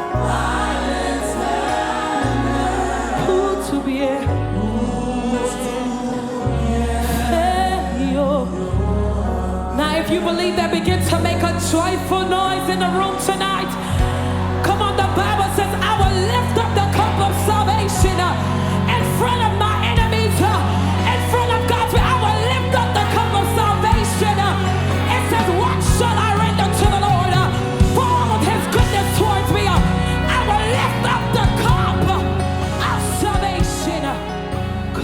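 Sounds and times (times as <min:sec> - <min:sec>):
gospel worship band playing: 0:00.0 - 0:35.0
voices singing and wailing: 0:00.0 - 0:35.0.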